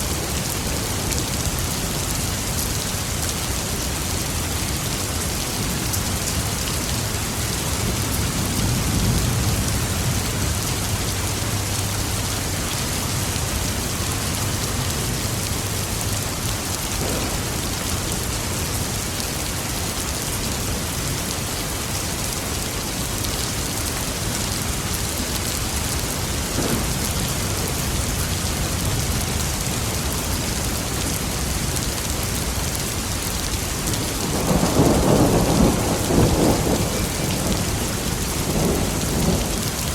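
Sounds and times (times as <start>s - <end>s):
heavy rain falling: 0.0s - 39.9s
thunder rumbling: 16.9s - 18.8s, 26.2s - 30.2s, 33.8s - 39.9s.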